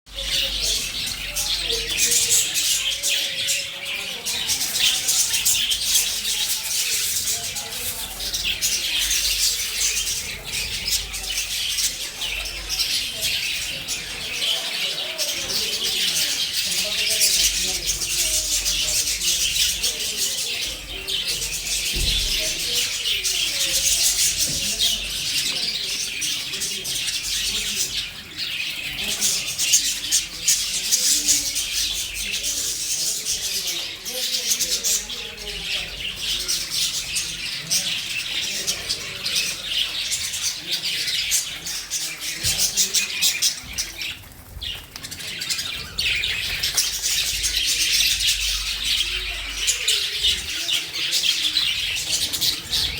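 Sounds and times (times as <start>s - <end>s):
budgerigars chattering and chirping: 0.1s - 52.9s.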